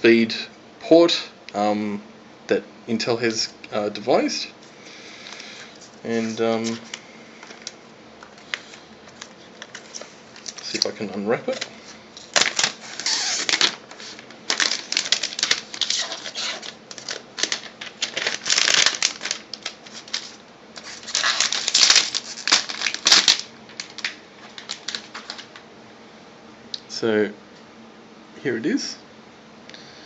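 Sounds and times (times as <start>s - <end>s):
wrapping rustling: 5.2s - 25.6s.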